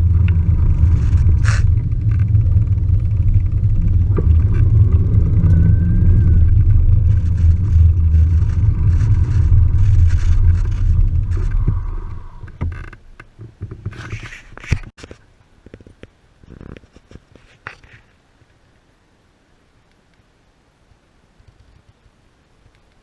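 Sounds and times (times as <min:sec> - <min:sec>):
electric mountain bike rumble: 0:00.0 - 0:14.4
faint clicks: 0:21.4 - 0:23.0.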